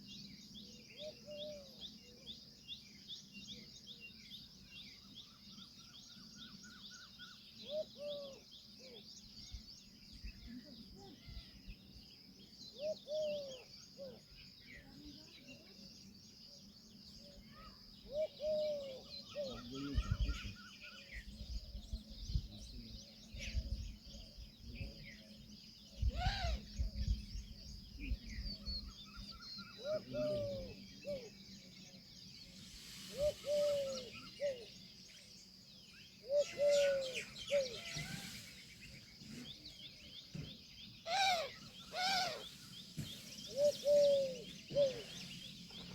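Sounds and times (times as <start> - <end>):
small birds chirping: 0.0 - 45.9
peahen honking calls: 36.4 - 38.6, 41.1 - 42.7.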